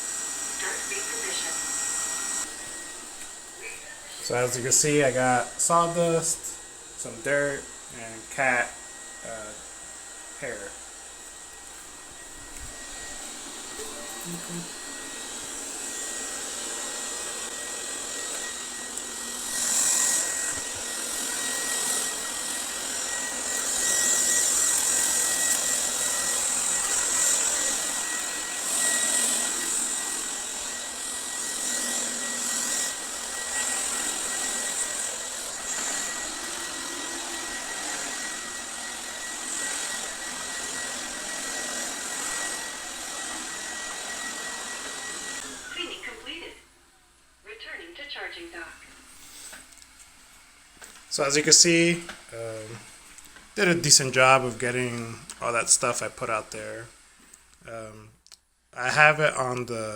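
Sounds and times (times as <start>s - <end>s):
robot vacuum motor whine: 0.0s - 46.6s.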